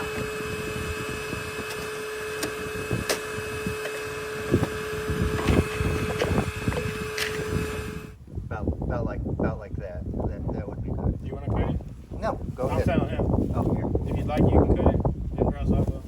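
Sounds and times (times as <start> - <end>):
steady hum: 0.0 - 8.2.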